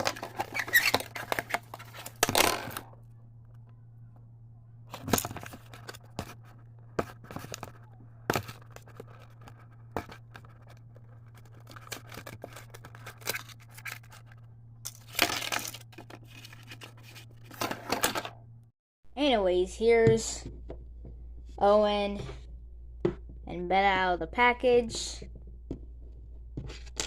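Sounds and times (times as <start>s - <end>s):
cardboard and plastic tearing: 0.0s - 2.8s, 8.3s - 18.2s
low hum: 0.0s - 27.0s.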